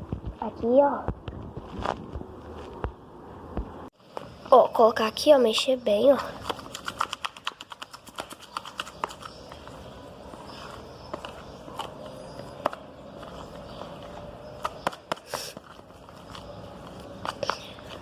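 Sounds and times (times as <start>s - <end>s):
slime stirred with wet squelches: 5.4s - 18.0s.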